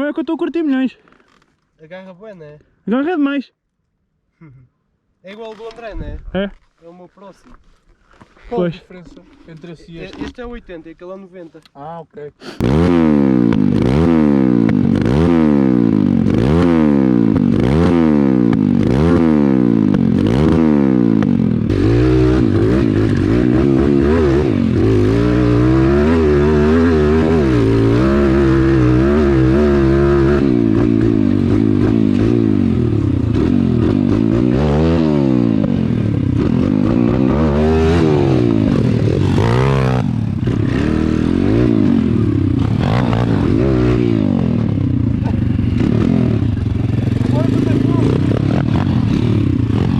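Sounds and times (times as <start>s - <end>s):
pit bike engine revving: 12.6s - 49.9s.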